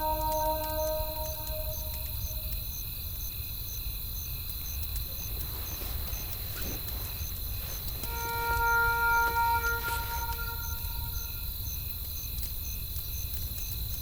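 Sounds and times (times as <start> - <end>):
crickets chirping: 0.0 - 14.0
insect drone: 0.0 - 14.0.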